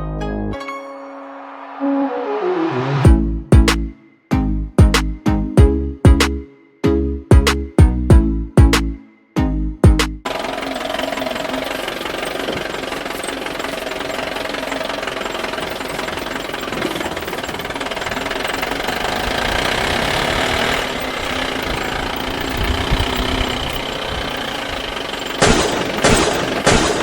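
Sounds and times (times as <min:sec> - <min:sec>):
toy vehicle engine running: 0:10.3 - 0:27.0.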